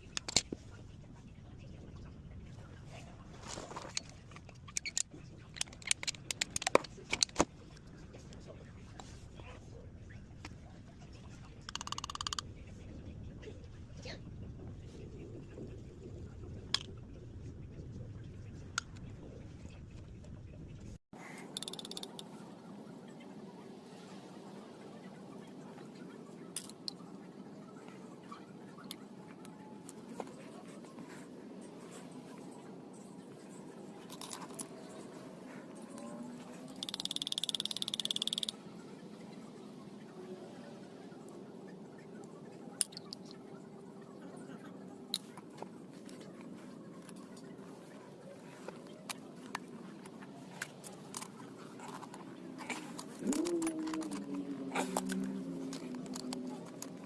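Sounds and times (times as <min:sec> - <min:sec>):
sharp clicks and snips: 0:36.7 - 0:38.6.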